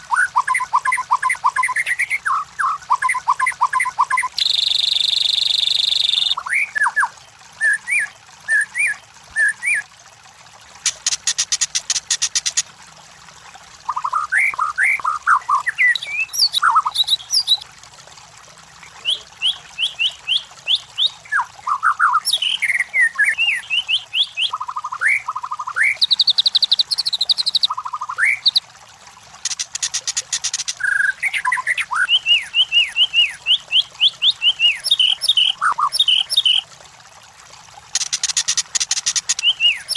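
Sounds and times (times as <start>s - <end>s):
bird singing whistled notes: 0.4s - 7.0s, 14.0s - 17.6s, 19.0s - 28.6s, 30.8s - 36.6s.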